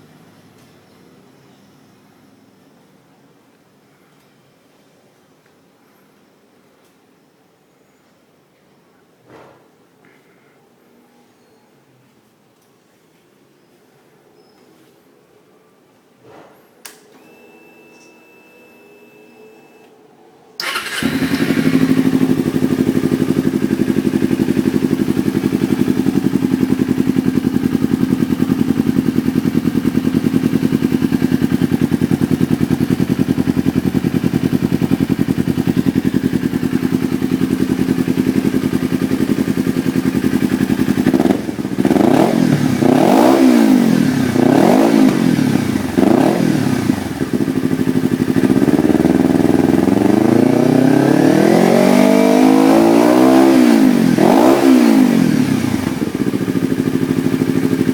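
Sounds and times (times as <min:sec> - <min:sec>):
motorcycle engine idling and revving: 0:20.6 - 0:57.9.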